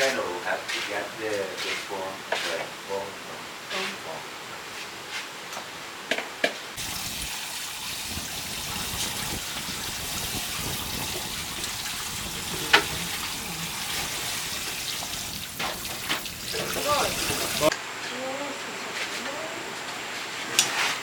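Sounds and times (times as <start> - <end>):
running water: 6.8 - 17.8.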